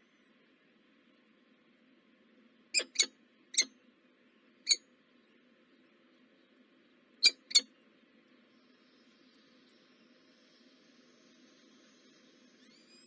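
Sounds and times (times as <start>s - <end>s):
high squeaky bird chirps: 2.8s - 3.7s, 7.2s - 7.6s.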